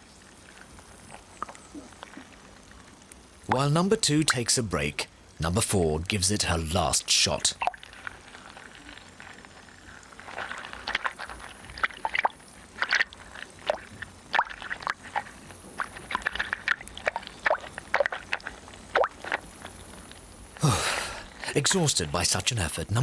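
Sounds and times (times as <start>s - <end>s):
underwater bubbling and gurgling: 7.6s - 20.6s.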